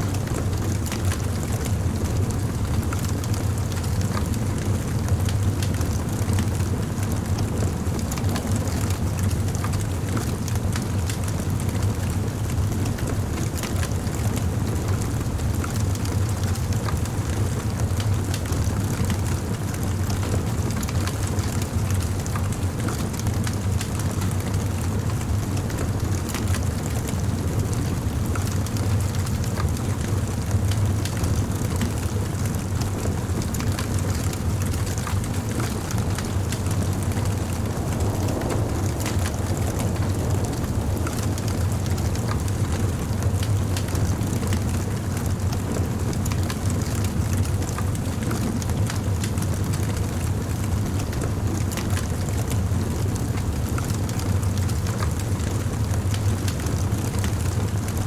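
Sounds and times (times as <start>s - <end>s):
fire crackles and pops: 0.1s - 58.0s
bonfire flames rushing: 15.2s - 58.0s.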